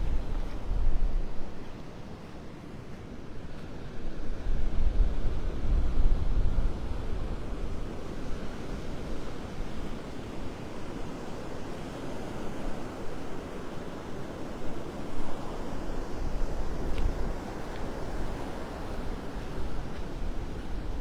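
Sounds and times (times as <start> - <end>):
wind rumbling on microphone: 0.0 - 2.2, 3.4 - 11.1, 14.6 - 21.0.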